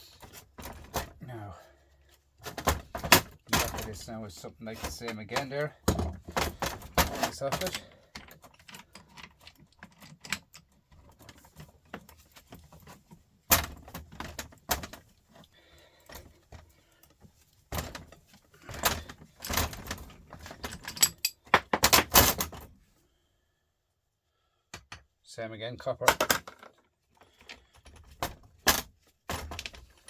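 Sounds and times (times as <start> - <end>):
metal parts clinking and clattering: 4.8 - 15.0, 17.8 - 22.7.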